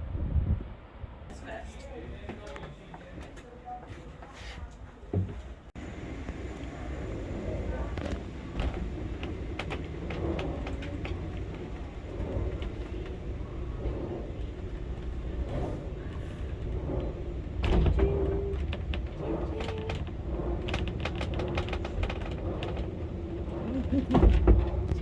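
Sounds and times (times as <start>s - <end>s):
railway car rumbling: 0.7s - 25.0s
clicks and rattles: 7.8s - 25.0s.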